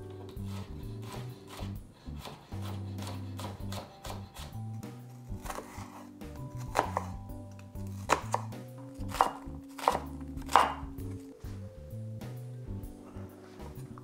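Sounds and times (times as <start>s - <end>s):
soft background music: 0.0s - 14.0s
knife chopping on wooden board: 0.2s - 7.2s, 7.8s - 11.1s.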